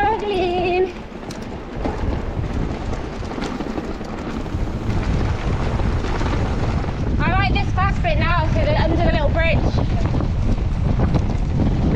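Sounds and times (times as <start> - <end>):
bike knocks and rattles: 0.0 - 7.2
wind rumbling on microphone: 0.0 - 11.9.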